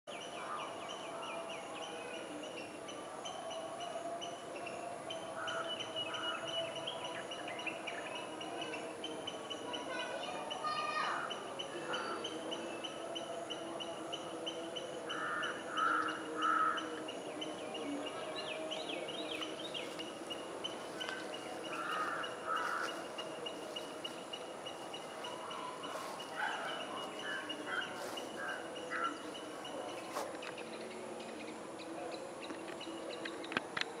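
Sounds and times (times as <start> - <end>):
countryside background hum: 4.6 - 34.0
birds calling: 15.1 - 31.4
bird twittering: 19.2 - 29.4.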